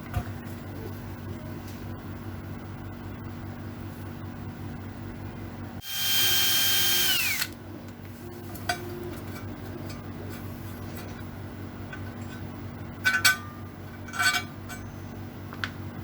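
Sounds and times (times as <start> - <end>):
electric drill motor whining: 5.8 - 7.6.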